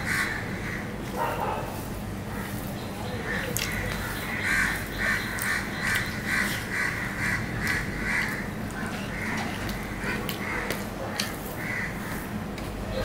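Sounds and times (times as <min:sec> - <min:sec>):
bird calling: 0:02.3 - 0:10.8.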